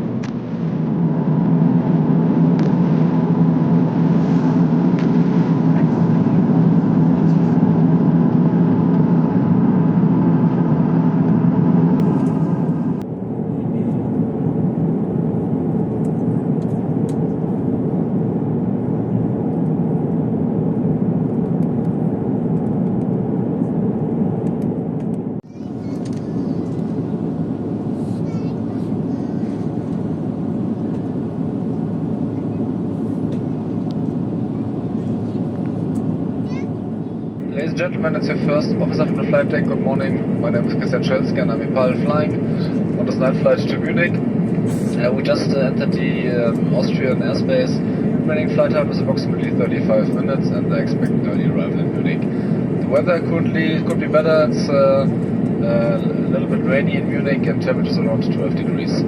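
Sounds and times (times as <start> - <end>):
airliner cabin engine hum: 0.0 - 59.0.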